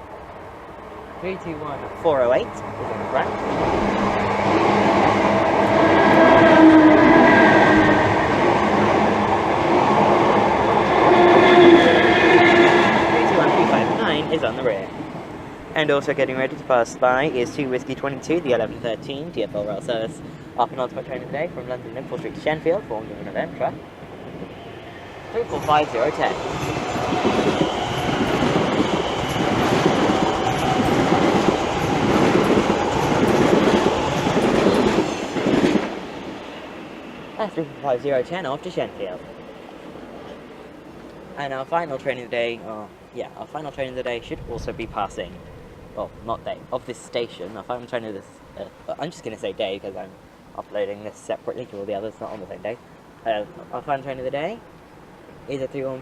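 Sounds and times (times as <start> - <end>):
train whining tone: 0.0 - 42.3
train wheels rumbling on rail: 1.4 - 42.6.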